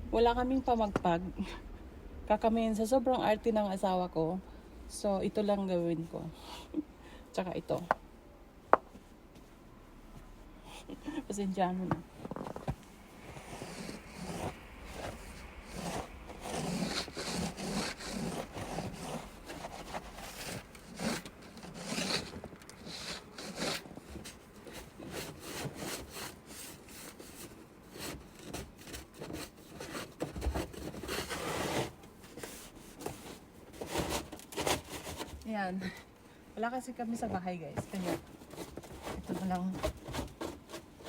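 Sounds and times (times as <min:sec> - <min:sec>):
clothing rustling: 0:12.0 - 0:35.5
hands scraping snow off car: 0:12.3 - 0:27.1.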